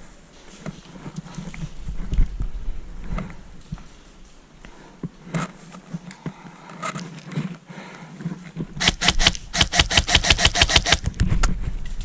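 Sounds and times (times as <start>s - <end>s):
airsoft gun rapid firing: 8.8s - 11.5s
scattered clicks: 8.8s - 11.5s.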